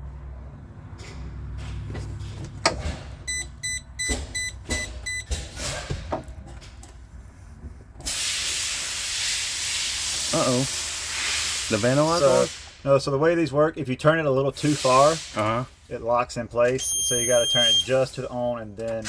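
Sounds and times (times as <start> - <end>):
short electronic beeps: 3.3 - 5.3, 16.8 - 18.0
steady hiss: 8.0 - 13.0, 14.6 - 16.1.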